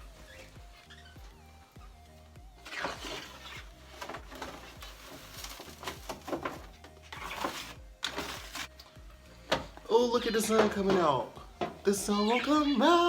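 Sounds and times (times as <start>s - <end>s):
faint bird chirping: 0.0s - 2.1s
cage tray scraping and knocking: 2.7s - 8.7s, 10.4s - 11.9s.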